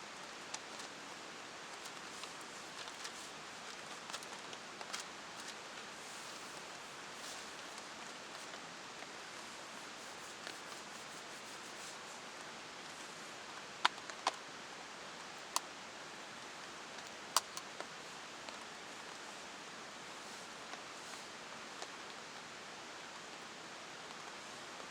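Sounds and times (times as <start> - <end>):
heavy rain hiss: 5.0 - 13.7
sharp clicks: 17.0 - 17.6.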